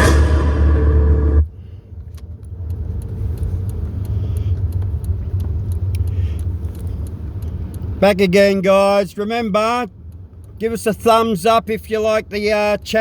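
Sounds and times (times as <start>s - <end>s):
loud sound cutting off: 0.0s - 1.7s
low vehicle rumble: 0.0s - 13.0s
faint ticks: 2.0s - 8.0s, 9.9s - 10.7s.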